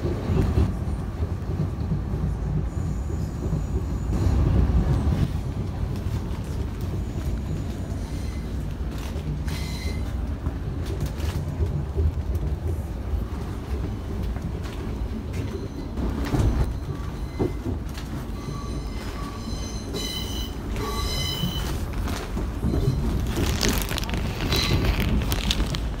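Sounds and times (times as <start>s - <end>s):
train interior rumble: 0.0s - 26.0s
high metallic squeals: 18.3s - 21.7s.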